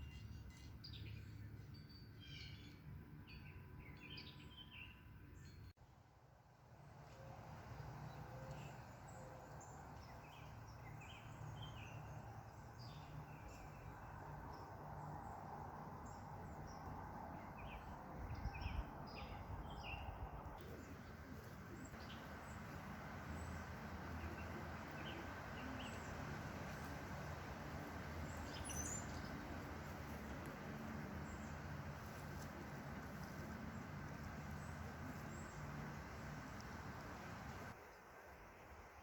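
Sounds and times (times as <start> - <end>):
small birds chirping: 8.1 - 37.8
low background rumble: 12.5 - 37.8.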